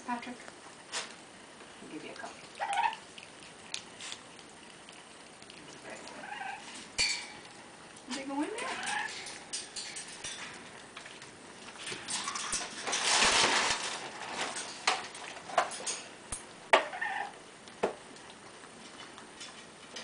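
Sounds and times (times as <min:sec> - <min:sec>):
rustling scuffling noise: 0:11.7 - 0:15.5.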